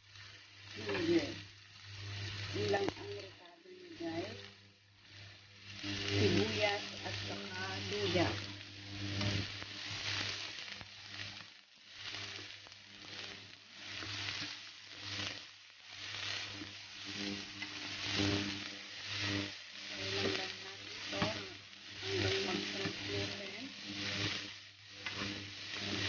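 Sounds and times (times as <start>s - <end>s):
food sizzling in hot oil: 0.0s - 26.0s
spatula stirring in pan: 0.0s - 26.0s.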